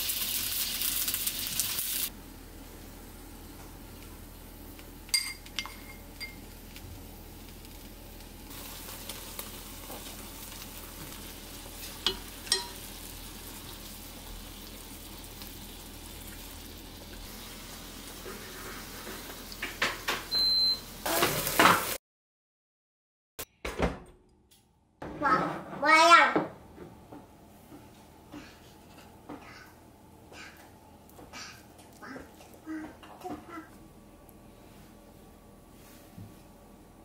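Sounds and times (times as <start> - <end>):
eggplant sizzling in a pan: 0.0 - 22.0
utensils clinking against pan: 5.1 - 6.5, 11.9 - 12.9.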